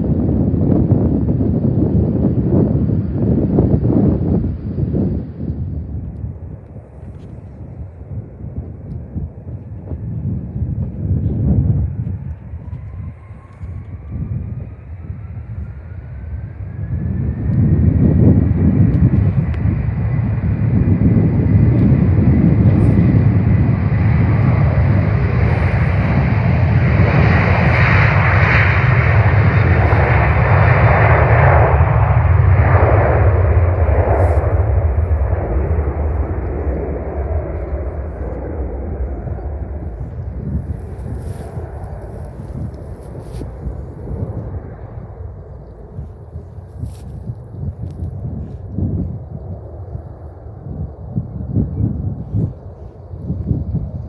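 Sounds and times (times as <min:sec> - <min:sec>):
jet engines rumbling: 0:00.0 - 0:54.0
high whine: 0:16.8 - 0:47.0.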